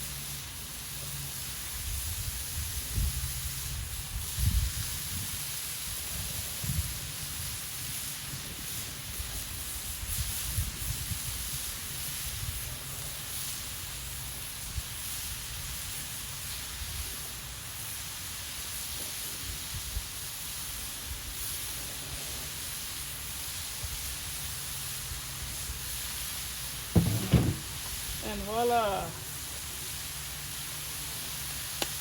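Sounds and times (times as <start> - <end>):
patties sizzling on a grill: 0.0 - 32.0.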